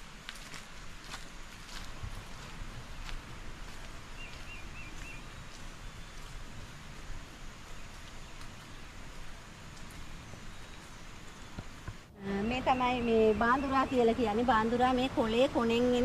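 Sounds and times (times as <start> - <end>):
faint footsteps: 0.0 - 12.1
rainforest hiss: 0.0 - 16.0.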